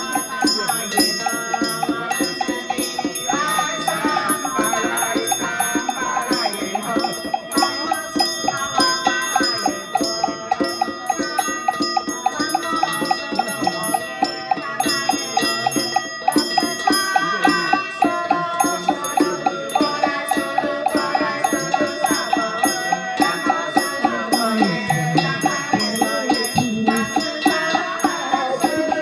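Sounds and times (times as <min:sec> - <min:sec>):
rapid percussion beat: 0:00.0 - 0:29.0
ringing bells: 0:00.0 - 0:29.0.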